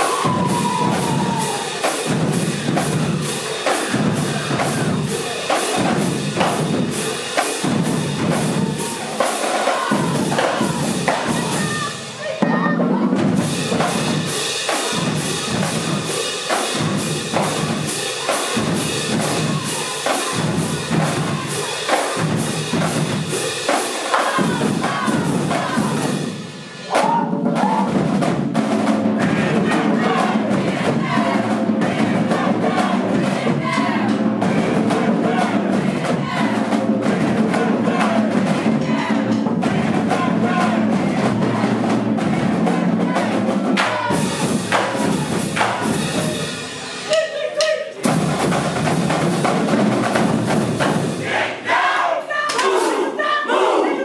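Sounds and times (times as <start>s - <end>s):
marching band playing: 0.0s - 53.9s.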